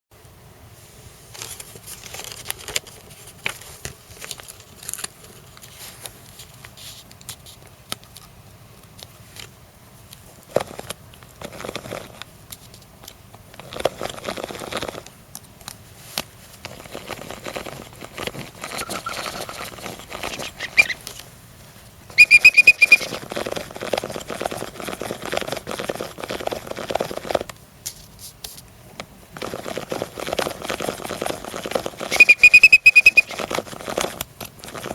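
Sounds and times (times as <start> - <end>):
rapid shrill piping run: 18.6 - 21.0, 22.1 - 23.2, 32.0 - 33.5
high whistling pipe notes: 22.1 - 23.1, 32.1 - 33.4.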